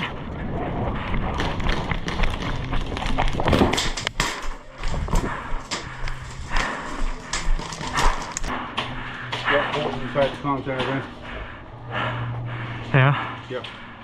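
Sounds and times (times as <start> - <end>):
gear jostling: 0.9 - 11.4
footsteps running: 0.9 - 12.2.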